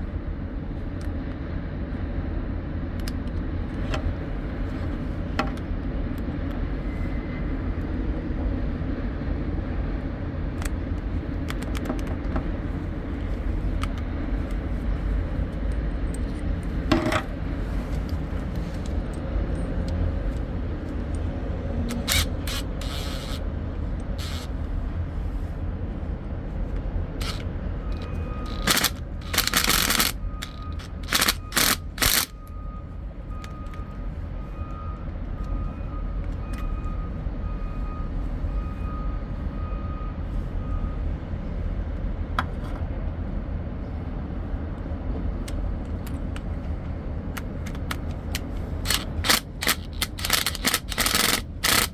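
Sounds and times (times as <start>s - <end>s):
objects scraping and clattering: 16.2s - 19.1s.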